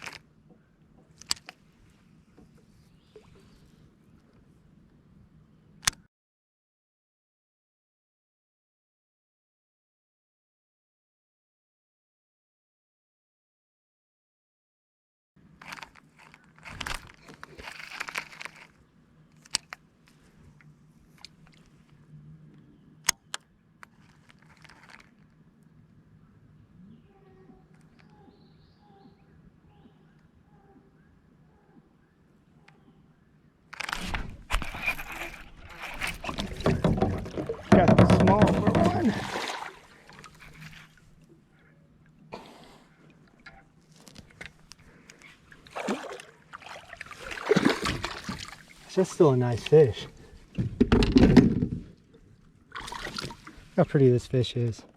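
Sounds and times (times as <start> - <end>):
water splashing and dripping: 36.2 - 41.3, 45.5 - 49.0, 52.1 - 53.7
short splash: 38.8 - 41.0, 45.6 - 48.9.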